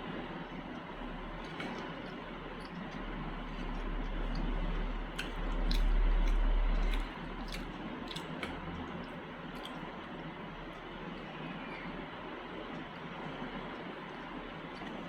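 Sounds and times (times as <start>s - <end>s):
mouth chewing wetly: 0.3s - 11.8s, 12.6s - 15.0s.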